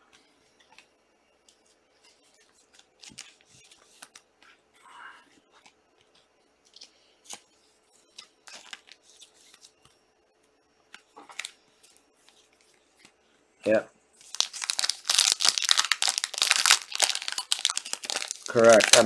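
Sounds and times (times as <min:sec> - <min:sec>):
cards and foil wrappers handled: 0:08.4 - 0:09.7, 0:11.2 - 0:11.6, 0:14.2 - 0:19.0.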